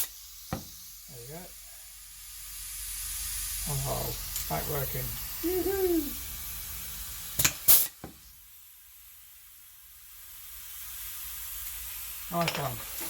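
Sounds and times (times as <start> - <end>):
sharp air blasts: 0.0 - 1.1, 2.3 - 8.5
air hissing: 0.0 - 13.0.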